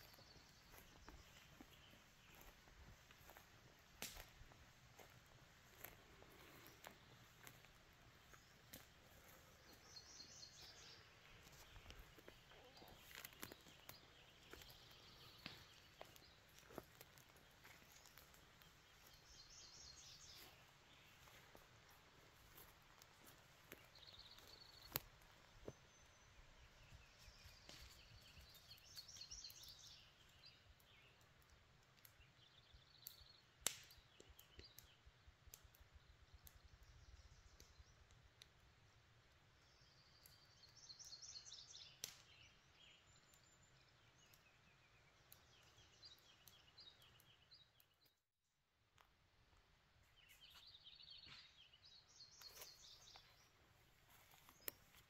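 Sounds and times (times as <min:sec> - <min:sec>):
songbird chirping and trilling: 0:00.0 - 0:03.4, 0:05.0 - 0:31.2, 0:39.6 - 0:48.2, 0:50.1 - 0:55.0.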